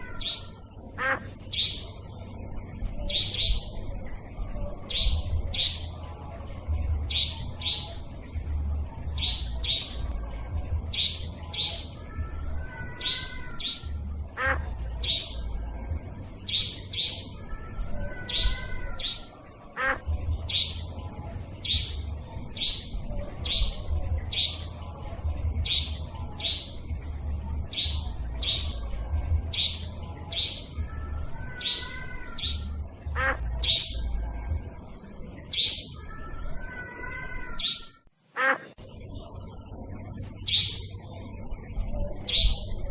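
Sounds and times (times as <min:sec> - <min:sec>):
nightjar calls: 0:00.0 - 0:02.2, 0:02.8 - 0:06.0, 0:07.1 - 0:08.2, 0:09.2 - 0:10.2, 0:10.9 - 0:24.8, 0:25.6 - 0:26.9, 0:27.7 - 0:34.2, 0:35.4 - 0:38.8, 0:40.4 - 0:41.0, 0:42.2 - 0:42.9
low warbling bird phrases: 0:00.0 - 0:42.9
low rumble: 0:01.2 - 0:11.5, 0:20.0 - 0:30.2.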